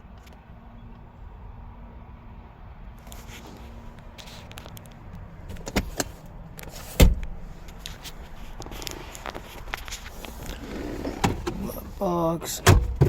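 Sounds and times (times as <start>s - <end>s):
outdoor background noise: 0.0s - 13.0s
knocks and clunks: 5.5s - 7.8s, 8.7s - 11.9s, 12.5s - 13.0s.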